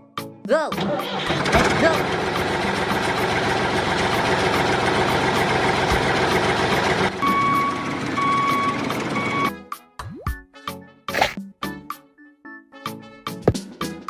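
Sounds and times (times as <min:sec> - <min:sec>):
vehicle engine running: 0:01.1 - 0:09.3.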